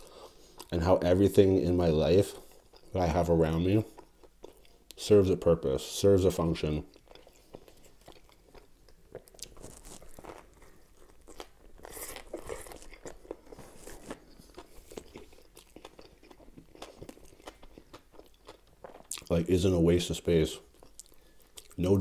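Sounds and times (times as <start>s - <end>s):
crunchy bread chewing: 6.9s - 19.3s.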